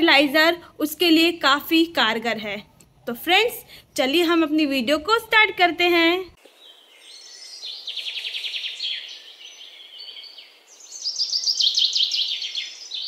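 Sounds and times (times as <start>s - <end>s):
songbirds singing: 6.4s - 13.0s.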